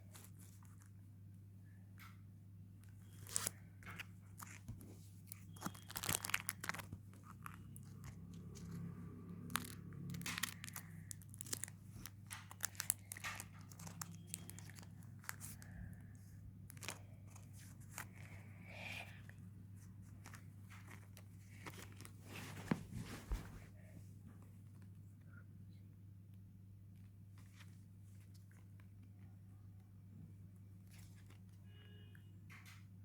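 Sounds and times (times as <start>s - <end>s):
steady low hum: 0.0s - 31.7s
foil pack tearing and crinkling: 5.3s - 7.9s, 9.4s - 15.4s.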